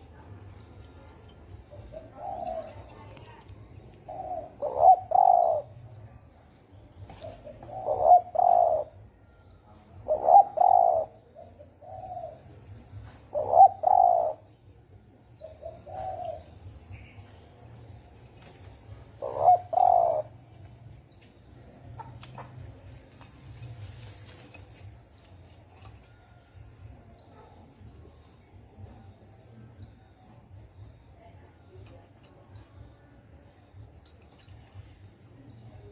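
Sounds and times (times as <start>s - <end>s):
dove cooing: 0.0s - 5.9s, 7.0s - 9.1s, 10.0s - 14.6s, 15.3s - 17.2s, 18.0s - 20.5s
faint high whine: 0.0s - 35.9s.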